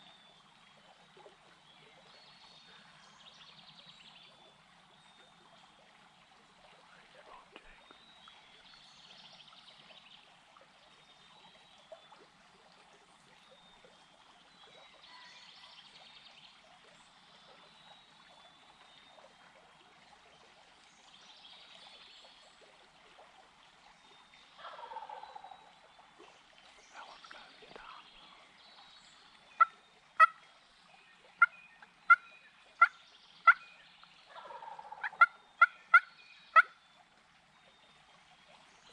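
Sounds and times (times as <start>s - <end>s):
wild turkey gobbling: 24.6s - 25.5s, 29.6s - 30.4s, 34.3s - 36.8s.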